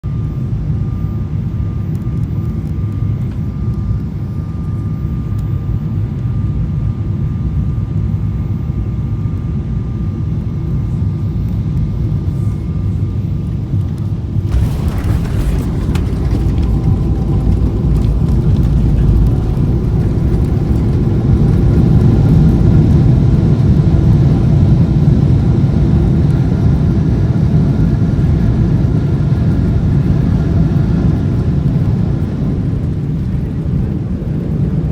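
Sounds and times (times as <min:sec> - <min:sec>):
jet rumble: 0:10.4 - 0:34.9.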